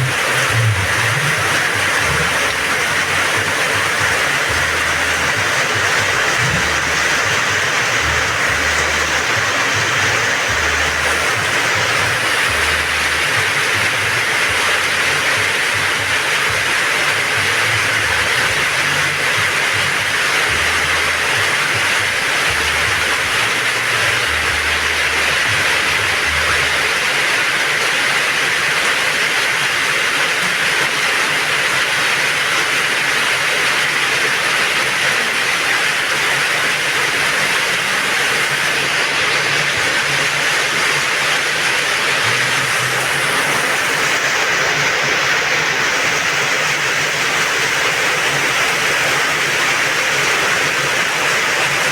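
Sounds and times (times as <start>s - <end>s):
faint low rumbling: 0.0s - 14.6s
heavy rain pouring: 0.0s - 51.9s.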